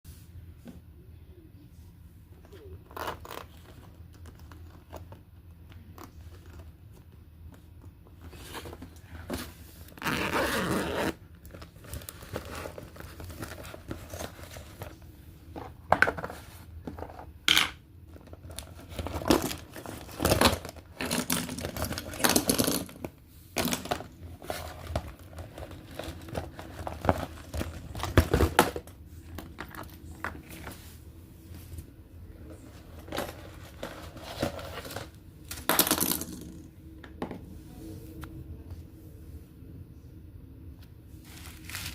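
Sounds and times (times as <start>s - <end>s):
plastic toys rustling and crinkling: 11.1s - 17.3s, 18.1s - 35.7s, 41.2s - 41.9s.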